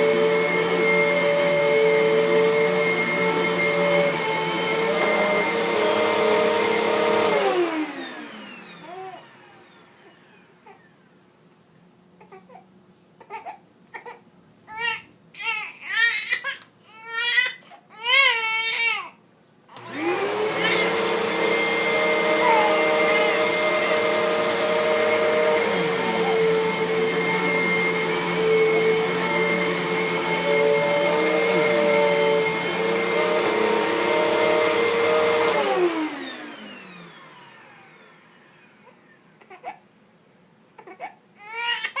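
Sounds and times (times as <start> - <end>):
vacuum cleaner motor whine: 0.0 - 10.6, 19.8 - 39.3
baby crying: 8.8 - 9.3, 12.2 - 19.2, 20.5 - 28.8, 38.9 - 39.8, 40.8 - 42.0.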